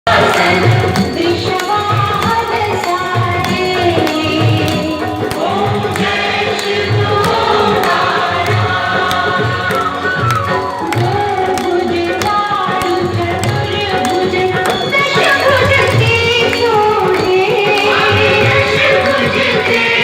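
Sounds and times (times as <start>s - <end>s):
light ticking percussion: 0.1s - 20.0s
melodic singing: 0.1s - 20.0s.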